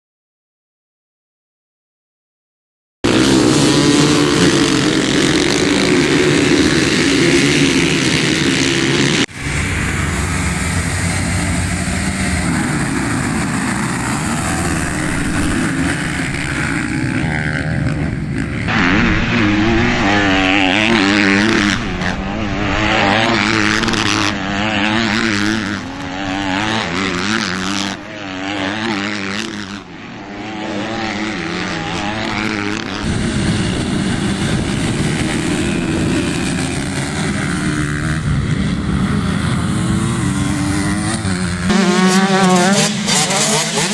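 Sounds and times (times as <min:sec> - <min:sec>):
motocross bike engine revving: 0:03.0 - 0:43.9
steady rush of noise: 0:03.1 - 0:41.7.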